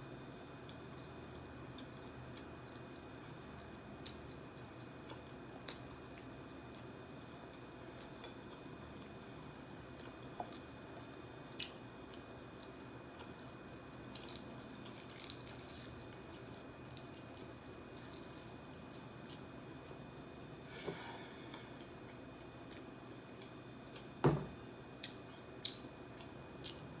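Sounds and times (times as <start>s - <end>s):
faint steady hum: 0.0s - 27.0s
chicken crackling pulled apart: 14.2s - 16.2s
person chewing: 25.0s - 26.9s.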